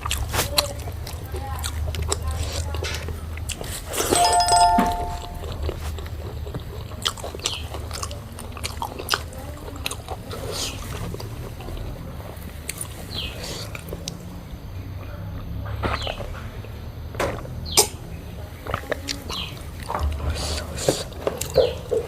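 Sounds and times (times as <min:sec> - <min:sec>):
brief steady tone: 0:04.2 - 0:05.6
person chewing food: 0:05.9 - 0:11.3.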